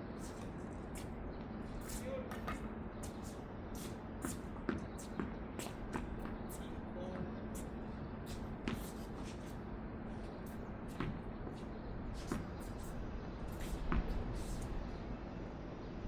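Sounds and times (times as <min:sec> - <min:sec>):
low background noise: 0:00.0 - 0:16.0
tennis ball hitting rackets: 0:01.8 - 0:09.6, 0:10.2 - 0:14.8.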